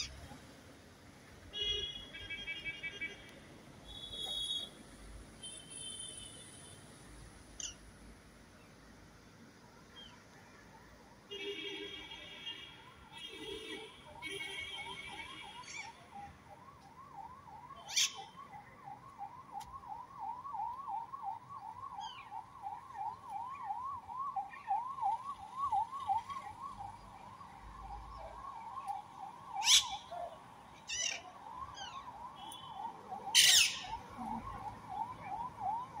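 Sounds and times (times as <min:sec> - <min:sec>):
parakeet screeching: 0:17.9 - 0:18.2, 0:29.6 - 0:30.0, 0:33.4 - 0:33.8.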